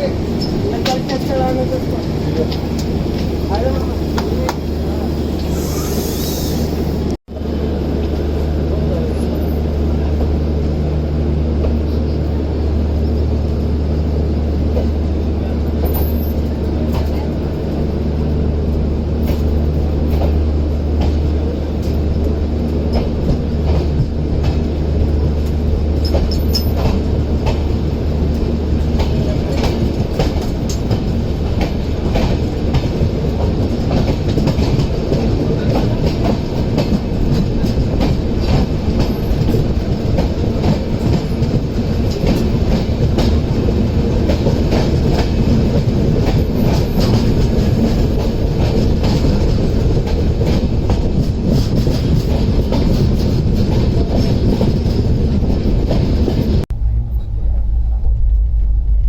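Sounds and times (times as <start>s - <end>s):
train rumble: 0.0s - 59.0s
train wheels clattering: 19.2s - 56.6s
steady low hum: 56.7s - 59.0s.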